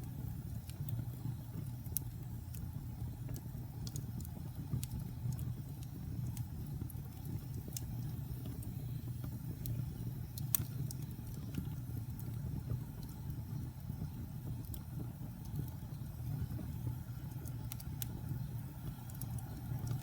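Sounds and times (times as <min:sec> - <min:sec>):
fire flames rumbling: 0:00.0 - 0:20.0
wood fire crackles and pops: 0:00.0 - 0:20.0.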